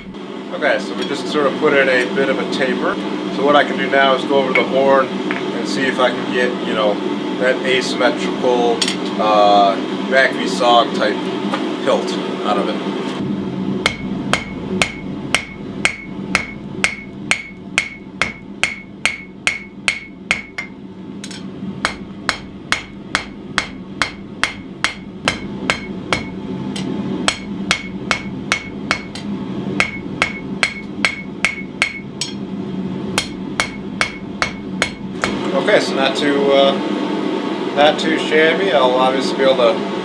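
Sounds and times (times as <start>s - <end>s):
steady low hum: 0.0s - 40.0s
hammer striking steel on anvil: 13.8s - 32.5s, 33.2s - 35.5s.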